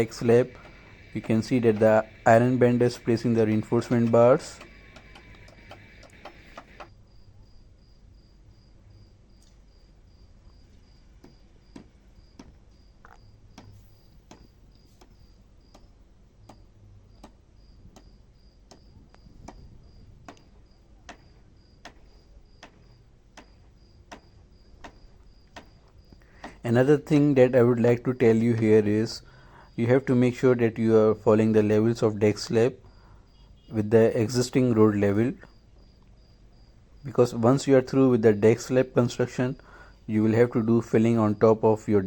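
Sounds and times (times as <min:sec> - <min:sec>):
cricket chirping: 0:00.0 - 0:26.6, 0:32.6 - 0:42.0
faint clicks: 0:03.8 - 0:06.9.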